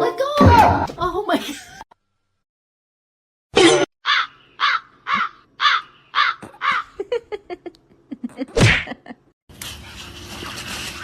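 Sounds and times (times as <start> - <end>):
animal harsh calls: 4.0 - 7.0.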